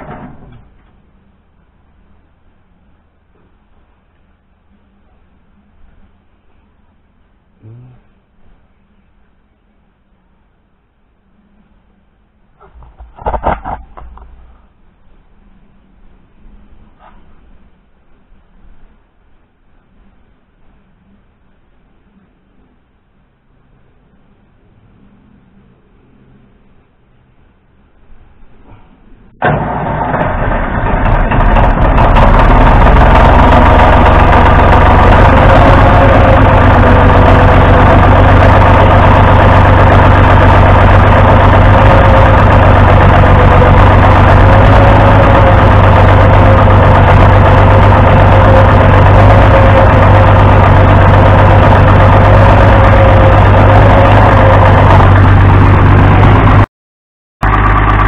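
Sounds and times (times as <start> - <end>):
tractor engine idling: 29.2 - 56.7, 57.4 - 58.0.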